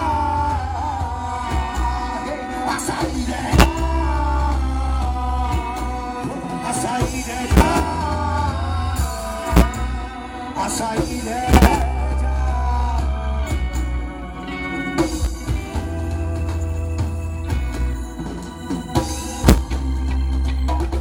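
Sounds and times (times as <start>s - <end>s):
deep bass line: 0.0s - 18.4s, 19.2s - 21.0s
reggae band playing: 0.0s - 21.0s
sharp drum hits: 7.5s - 8.1s.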